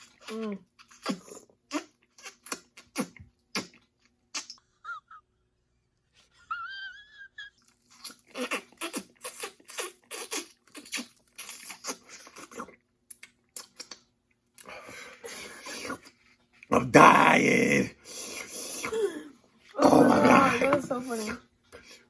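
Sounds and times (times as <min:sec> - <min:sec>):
person wheezing: 0:18.6 - 0:20.8.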